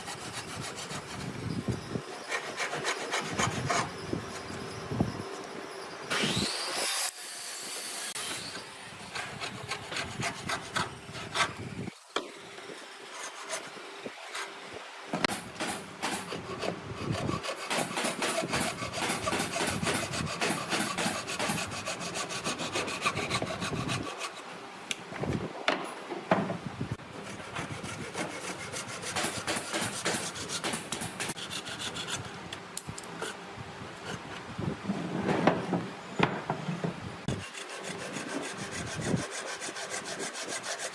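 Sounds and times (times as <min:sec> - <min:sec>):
rasping strokes on wood: 0:00.0 - 0:01.4, 0:02.1 - 0:04.6, 0:09.1 - 0:11.6, 0:15.3 - 0:24.4, 0:27.2 - 0:32.3, 0:37.3 - 0:40.9.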